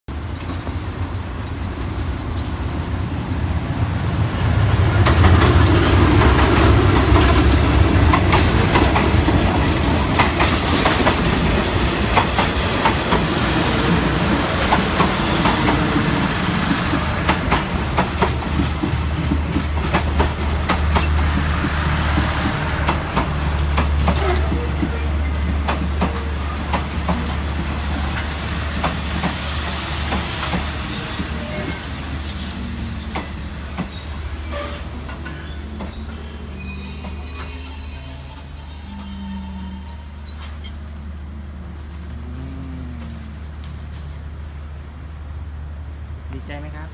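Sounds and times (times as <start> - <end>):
locomotive engine rumbling: 0.1 - 46.9
train wheels clacking over rail joints: 4.8 - 37.6.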